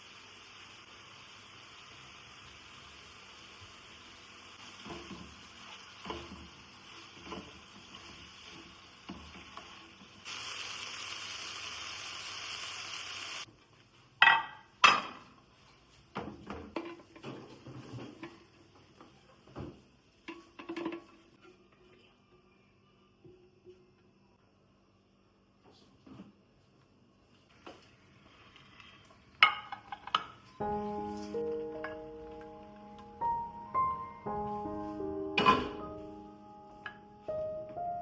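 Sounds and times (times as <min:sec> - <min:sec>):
cooking hiss: 0:00.0 - 0:14.2
metal clanking on cookware: 0:14.2 - 0:15.3, 0:16.2 - 0:18.5, 0:20.3 - 0:21.2, 0:29.4 - 0:30.5, 0:35.4 - 0:35.9
dishes and cutlery clattering: 0:20.3 - 0:21.2, 0:29.4 - 0:30.5, 0:35.4 - 0:35.9.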